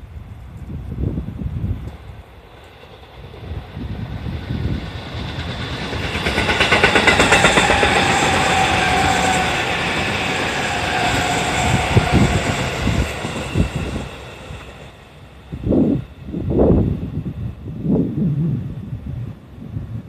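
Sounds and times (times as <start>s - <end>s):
train whine: 1.9s - 18.8s
train wheels clattering over rail joints: 4.8s - 14.9s.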